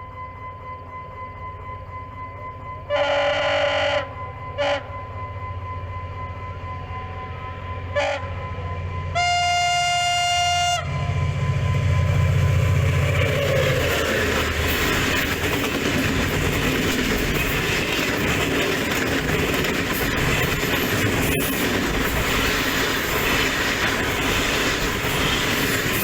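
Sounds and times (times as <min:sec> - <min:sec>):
rush of approaching train: 0:00.0 - 0:26.0
locomotive horn blasts: 0:02.9 - 0:04.9, 0:07.9 - 0:11.2
locomotive engine rumble: 0:05.0 - 0:26.0.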